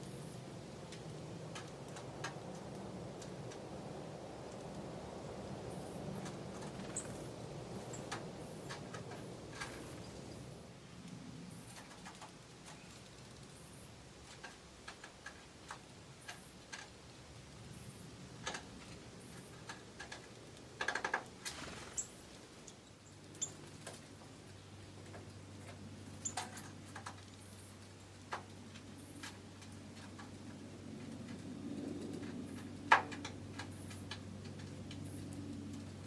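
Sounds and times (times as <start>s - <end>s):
bird call notes and ticks: 5.7s - 16.9s, 17.8s - 31.4s, 32.4s - 35.9s.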